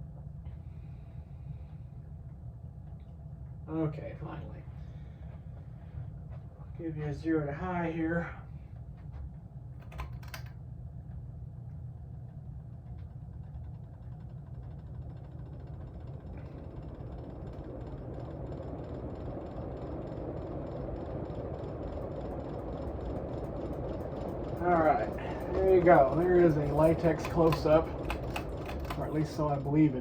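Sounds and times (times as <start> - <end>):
rush of air from fan: 0.0 - 2.7, 14.2 - 30.0
ceiling fan motor humming: 0.0 - 30.0
fan switch clicks: 9.8 - 10.6, 24.6 - 29.9.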